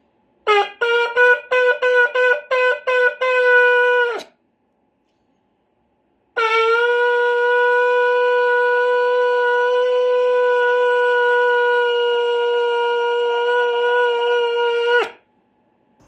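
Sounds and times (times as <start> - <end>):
shofar long blast: 0.5 - 4.2, 6.4 - 15.2.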